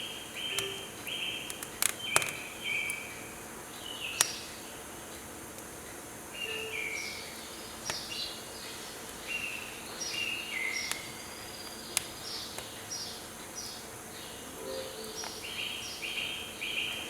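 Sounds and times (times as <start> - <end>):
songbirds singing: 0.0 - 17.0
steady background hiss: 0.0 - 17.0
firewood crackling pops: 1.5 - 3.0.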